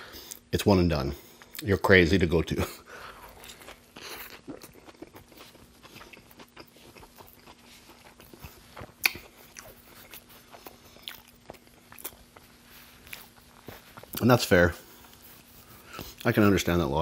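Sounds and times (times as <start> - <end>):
person chewing food: 3.0 - 16.4.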